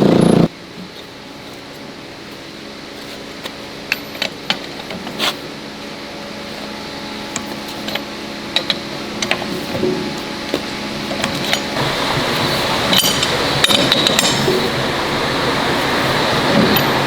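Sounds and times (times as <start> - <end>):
machine humming: 0.0 - 1.4, 5.4 - 17.0.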